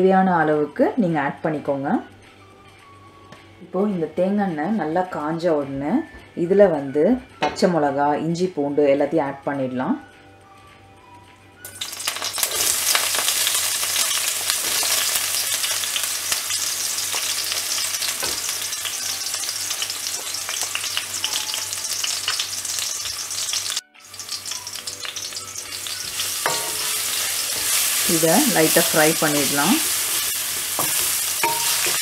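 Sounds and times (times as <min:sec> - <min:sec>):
food sizzling in hot oil: 0:11.7 - 0:32.0.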